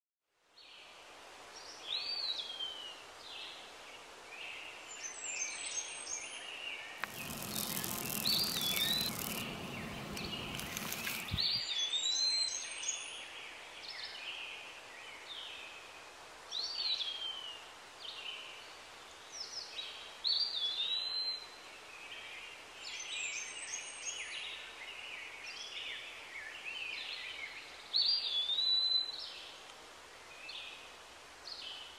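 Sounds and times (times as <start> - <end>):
birds singing: 7.0 - 11.7.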